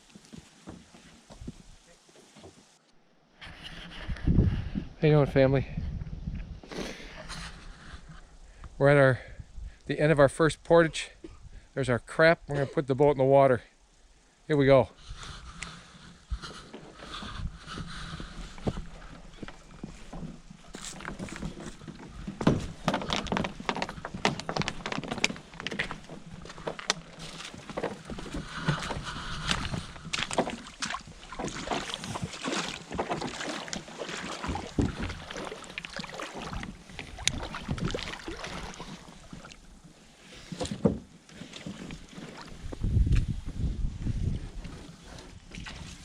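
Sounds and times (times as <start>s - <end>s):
water noise: 12.8s - 46.0s
canoe hull knocking and scraping: 15.3s - 46.0s.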